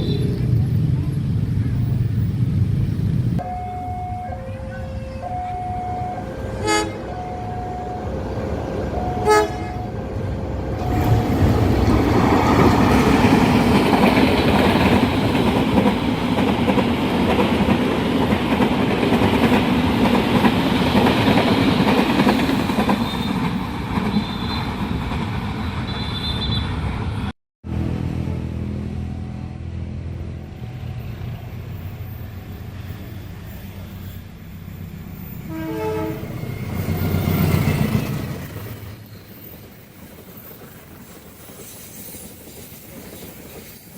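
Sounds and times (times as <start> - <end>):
train passing with wheel clatter: 0.0 - 43.9
train horn blasts: 3.4 - 11.5, 35.5 - 36.6.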